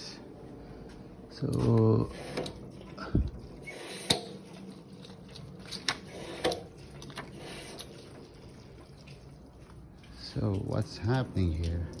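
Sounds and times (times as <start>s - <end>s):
water dripping: 2.6s - 12.0s.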